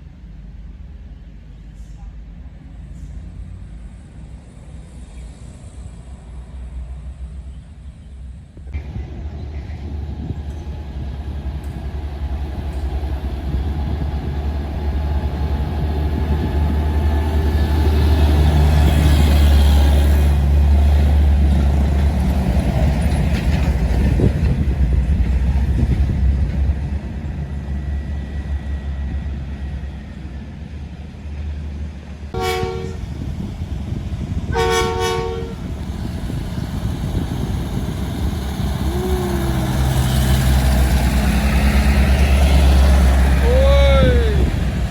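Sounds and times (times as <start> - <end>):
truck engine deep rumble: 0.1 - 44.9
horn blasts: 32.4 - 33.0, 34.5 - 35.7.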